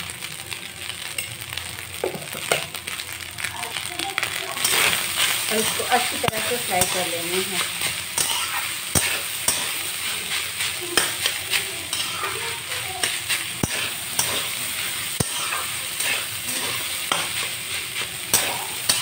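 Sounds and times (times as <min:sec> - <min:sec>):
rice sizzling in a pan: 0:00.0 - 0:19.0
spatula scraping and knocking pan: 0:04.6 - 0:19.0.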